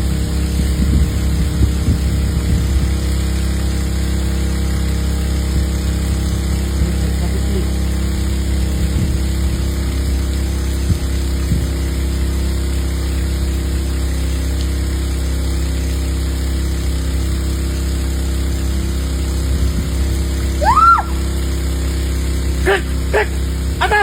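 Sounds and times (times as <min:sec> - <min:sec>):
water pump motor humming: 0:00.0 - 0:24.0
water spraying: 0:00.0 - 0:24.0
short rising-falling call: 0:20.6 - 0:21.3.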